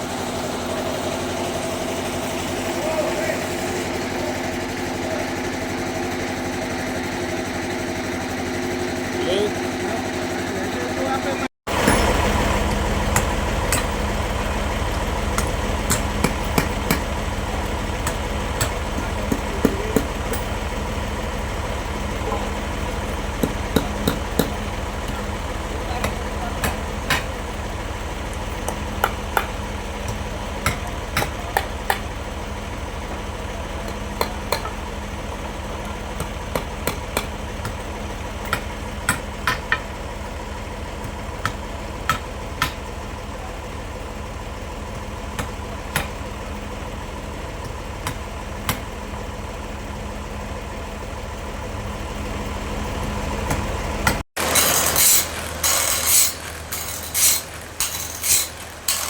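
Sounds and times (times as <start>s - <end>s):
sawmill engine idling: 0.0s - 59.0s
rapid mechanical clattering: 11.7s - 49.6s, 53.4s - 59.0s.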